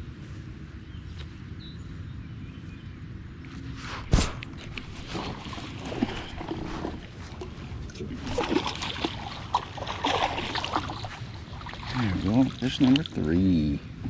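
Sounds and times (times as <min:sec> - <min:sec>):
water splashing: 0:03.9 - 0:13.6
loud hit: 0:04.0 - 0:04.6.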